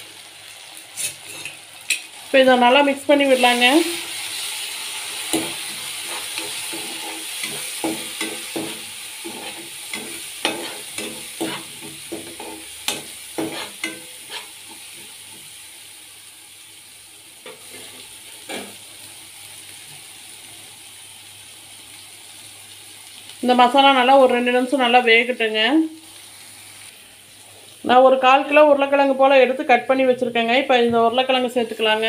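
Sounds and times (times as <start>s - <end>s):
sauce sizzling in a pan: 0.0s - 32.0s
spatula scraping and knocking pan: 5.3s - 15.5s.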